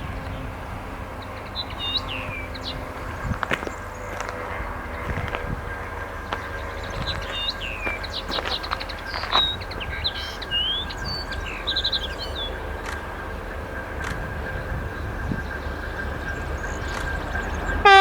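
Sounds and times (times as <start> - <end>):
low outdoor rumble: 0.0 - 17.9
songbird chirping and trilling: 6.0 - 12.8.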